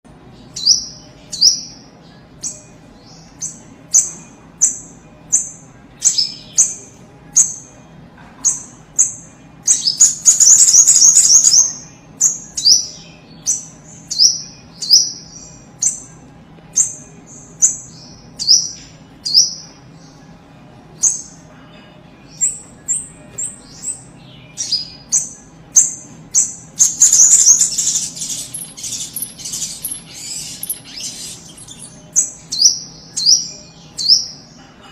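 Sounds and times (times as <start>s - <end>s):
bird chattering: 23.8s - 34.6s.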